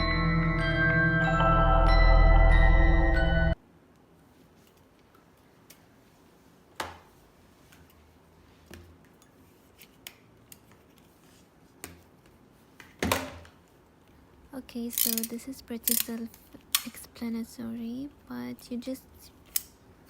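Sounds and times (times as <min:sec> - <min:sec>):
music track: 0:00.0 - 0:03.6
plastic parts clicking and knocking: 0:14.9 - 0:17.0.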